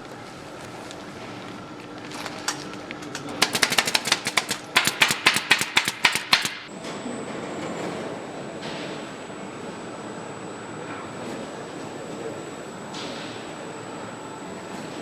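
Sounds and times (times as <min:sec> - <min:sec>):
rapid mechanical clicking: 0:03.3 - 0:06.7.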